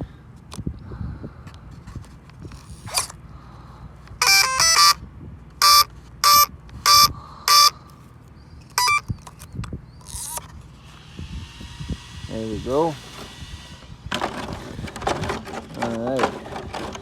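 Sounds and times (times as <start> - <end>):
short electronic beeps: 4.2 - 5.0, 5.6 - 7.7, 8.8 - 9.1
speed controller start-up tune: 4.2 - 5.0.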